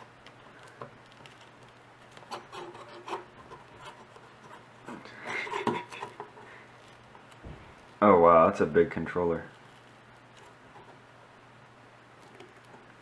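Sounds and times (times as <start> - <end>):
screwdriver scraping and clicking: 0.0 - 7.4.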